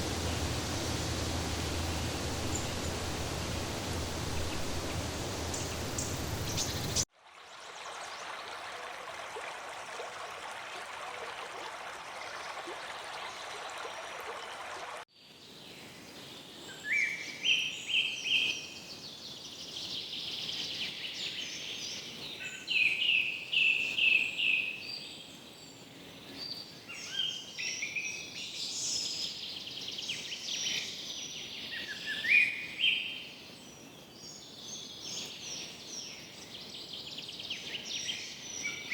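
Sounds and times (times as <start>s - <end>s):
rushing noise: 0.0s - 7.0s
steady hiss: 0.0s - 7.0s
birds chirping: 0.0s - 7.1s.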